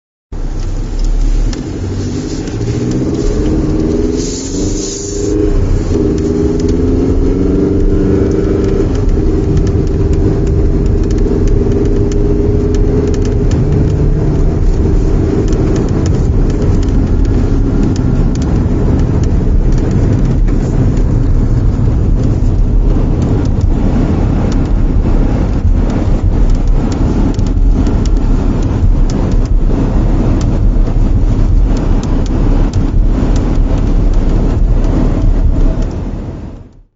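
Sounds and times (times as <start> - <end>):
car engine and road noise: 0.3 - 36.9.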